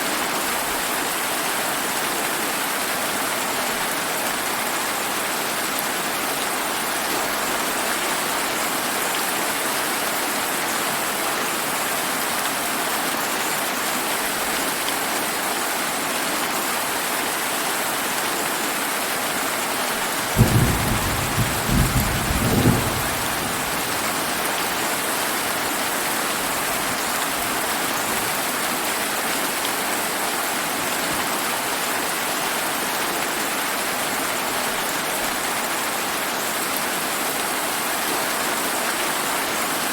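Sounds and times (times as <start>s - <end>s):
steady rain falling: 0.0s - 39.9s
thunder rumbling: 20.3s - 24.8s.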